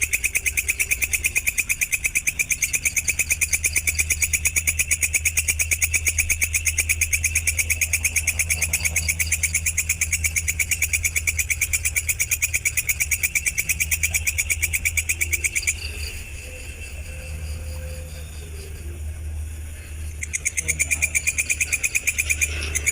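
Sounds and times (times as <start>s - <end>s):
steady low hum: 0.0s - 22.9s
high rapid pulsed trill: 19.5s - 22.9s.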